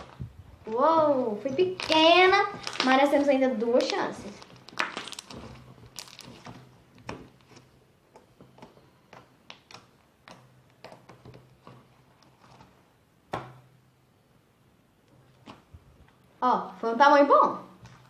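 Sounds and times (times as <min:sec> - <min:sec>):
slime bubble snapping: 0:03.8 - 0:06.4.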